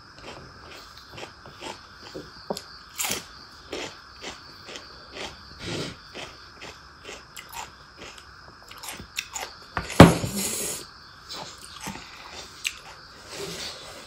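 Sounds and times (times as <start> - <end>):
chewing with wet mouth clicks: 6.1 - 9.5, 12.6 - 12.9.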